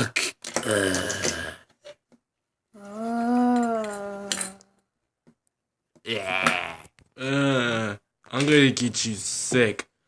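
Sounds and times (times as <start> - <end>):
person vocalising: 0.0 - 1.7, 2.8 - 4.8, 6.0 - 8.0.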